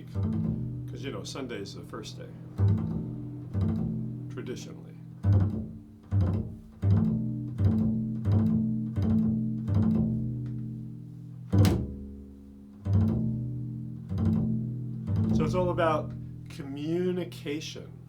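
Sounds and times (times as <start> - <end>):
low plucked string notes: 0.0 - 17.4.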